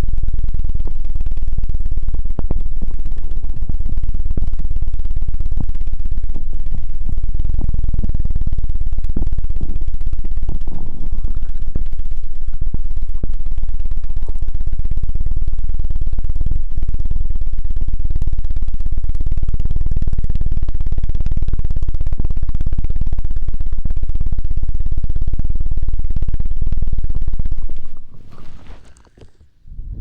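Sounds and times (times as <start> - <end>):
bass-heavy fluttering thump: 0.1 - 23.1
soft handling sounds: 27.8 - 29.6.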